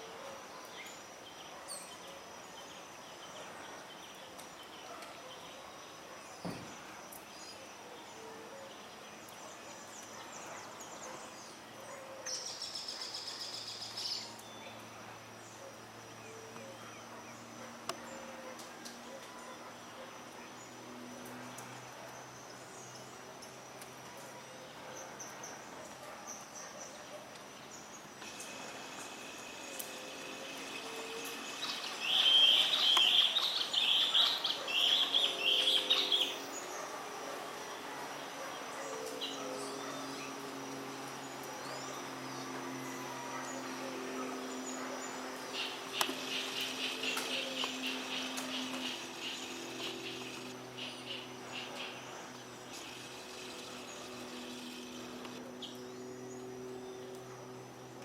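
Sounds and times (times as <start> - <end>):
faint outdoor hum: 0.0 - 58.0
high insect drone: 27.6 - 57.9.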